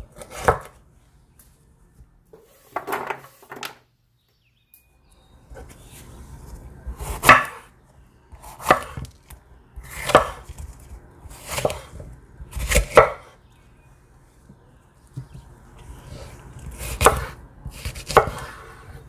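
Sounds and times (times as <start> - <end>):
knife chopping on cutting board: 7.0 - 7.6, 8.5 - 9.1, 9.8 - 10.6, 11.3 - 13.3, 16.7 - 18.7.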